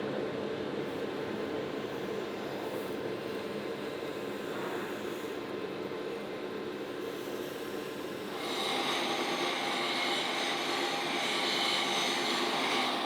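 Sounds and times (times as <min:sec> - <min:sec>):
power tool running: 0:08.2 - 0:13.0.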